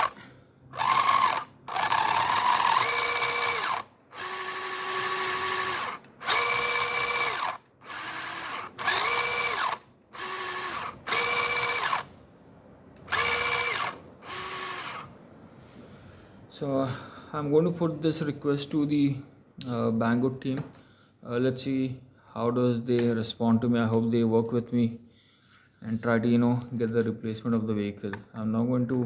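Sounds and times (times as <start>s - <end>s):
electric motor whining: 0.0s - 12.1s, 13.1s - 15.1s
motor grinding buzz: 0.0s - 12.1s, 13.0s - 15.1s.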